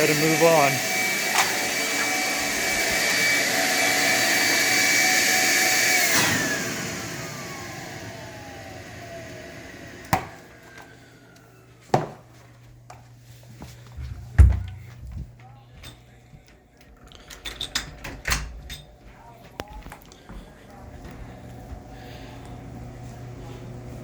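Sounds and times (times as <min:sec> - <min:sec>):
vacuum motor whine: 0:00.0 - 0:11.9, 0:20.2 - 0:24.0.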